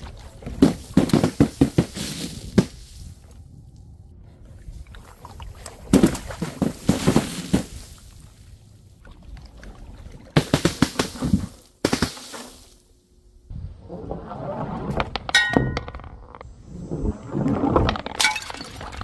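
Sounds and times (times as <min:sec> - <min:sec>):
containers bursting with splashing: 0:17.4 - 0:19.0.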